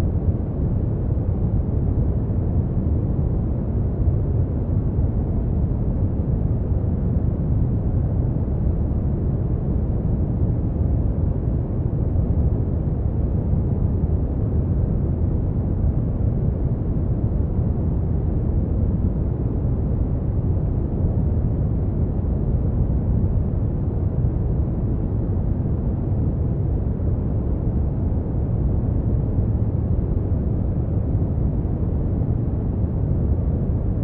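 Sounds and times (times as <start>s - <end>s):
brown noise rumbling hiss: 0.0s - 34.0s.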